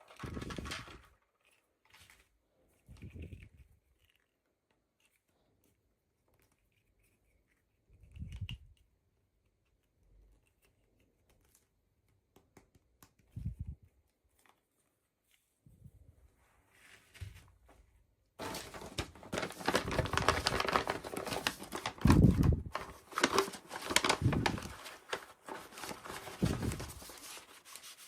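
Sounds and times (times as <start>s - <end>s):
packaging clicks and rustles: 18.4s - 27.7s.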